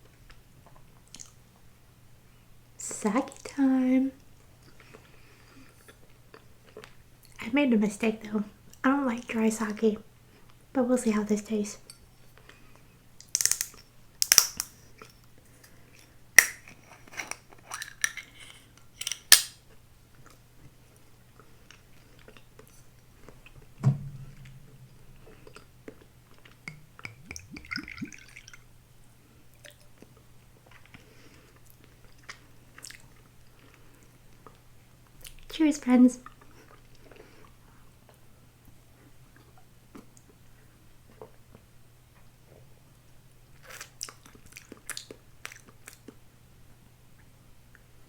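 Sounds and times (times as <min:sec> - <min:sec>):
soft chewing: 0:00.0 - 0:01.4, 0:04.2 - 0:07.4, 0:19.7 - 0:23.7, 0:29.5 - 0:35.5, 0:36.2 - 0:38.3, 0:38.9 - 0:42.3, 0:43.5 - 0:46.4
faint low hum: 0:00.0 - 0:48.0
thump: 0:23.8 - 0:25.4.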